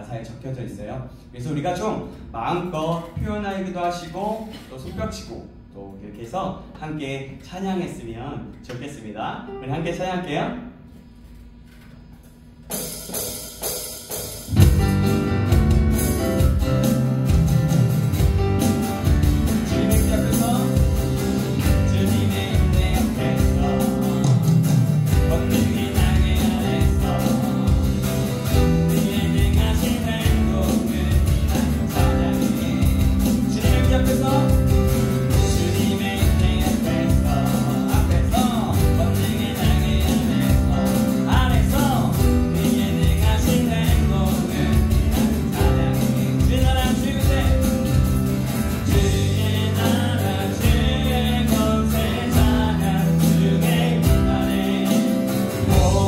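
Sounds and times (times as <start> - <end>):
band playing upbeat praise song: 12.7 - 56.0
steady drum beat: 12.7 - 56.0.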